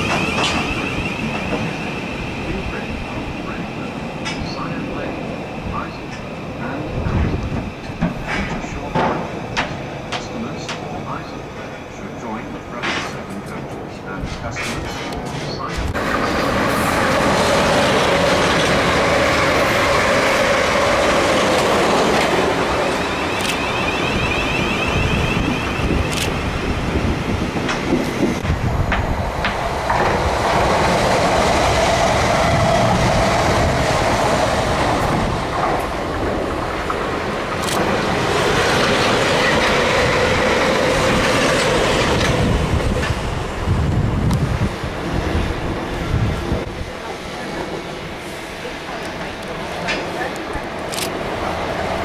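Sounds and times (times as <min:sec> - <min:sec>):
trains passing: 0:00.0 - 0:52.0
wheels clacking over rail joints: 0:27.6 - 0:43.4.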